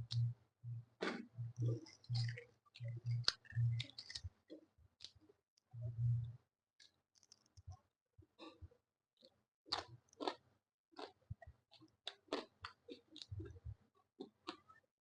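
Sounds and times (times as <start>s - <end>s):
chewing and wet mouth smacks: 1.0s - 4.4s, 9.7s - 10.4s, 11.0s - 13.6s, 14.2s - 14.8s.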